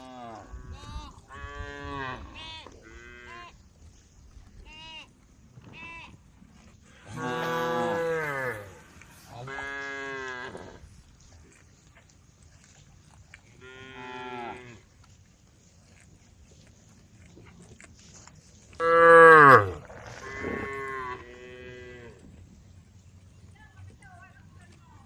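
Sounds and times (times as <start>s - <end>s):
cows mooing: 7.0s - 10.8s, 18.8s - 22.2s.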